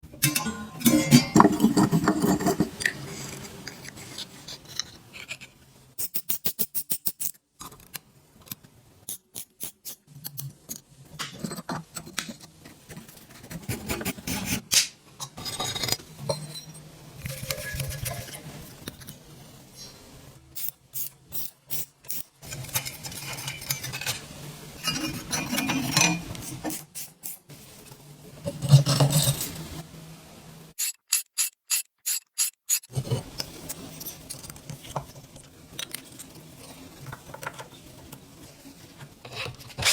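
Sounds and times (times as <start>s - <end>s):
hand tools scraping metal: 0.2s - 6.4s, 21.4s - 26.8s, 30.8s - 34.9s.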